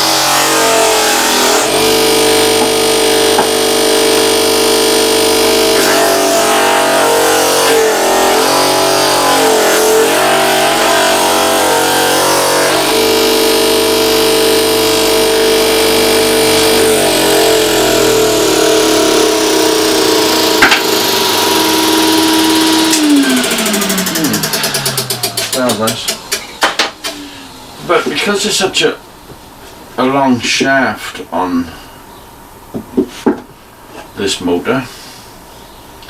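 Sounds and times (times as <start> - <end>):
sander motor running: 0.0 - 26.5.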